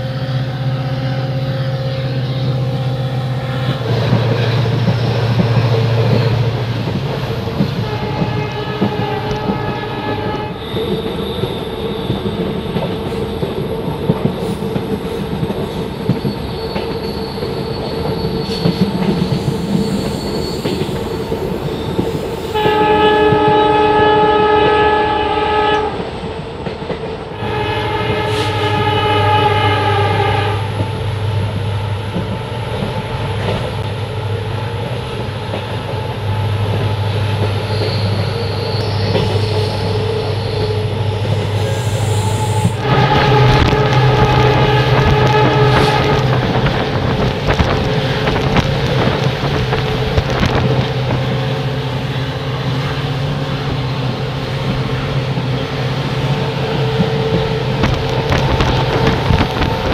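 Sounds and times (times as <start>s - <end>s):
train wheels rumbling on rails: 0.0s - 59.9s
locomotive air horn blast: 7.8s - 12.0s, 22.5s - 26.0s, 27.4s - 30.8s, 39.3s - 47.6s.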